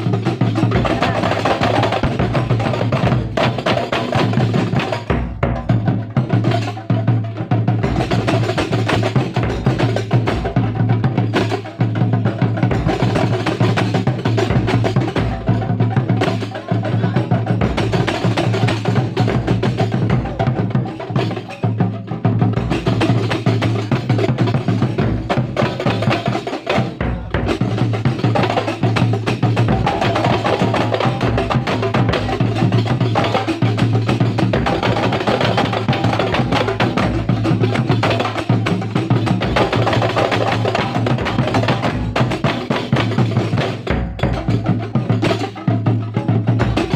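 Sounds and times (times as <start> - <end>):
hand drums playing: 0.0 - 46.9.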